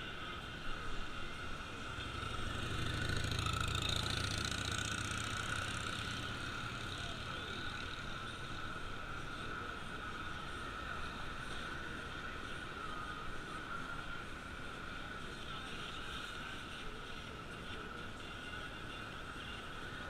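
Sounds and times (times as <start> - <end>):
vehicle engine passing by: 2.0 - 7.6.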